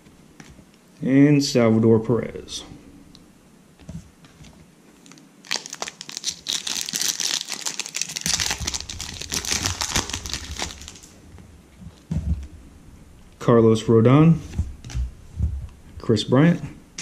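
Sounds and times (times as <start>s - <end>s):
foil wrapper crinkling and tearing: 5.0s - 11.1s.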